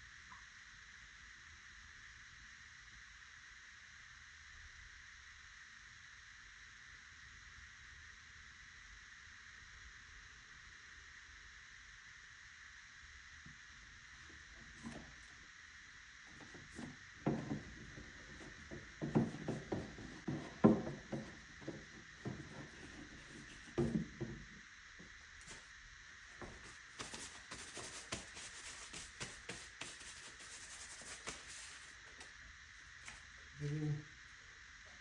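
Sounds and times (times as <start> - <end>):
plastic bottles knocking and rubbing: 16.3 - 24.5.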